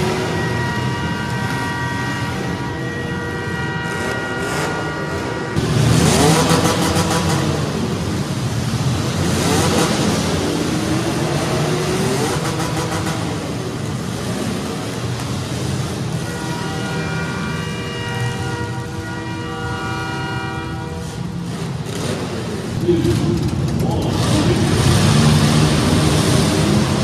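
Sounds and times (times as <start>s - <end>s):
steady horn: 0.0s - 7.8s, 15.9s - 23.3s
car engines revving hard: 0.0s - 27.0s.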